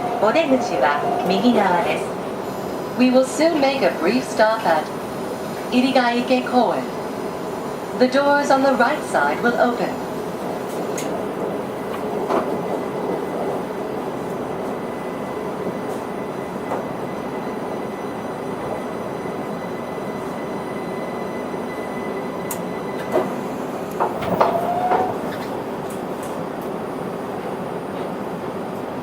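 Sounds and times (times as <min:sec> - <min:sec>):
train cabin hum: 0:00.0 - 0:04.8, 0:23.0 - 0:29.0.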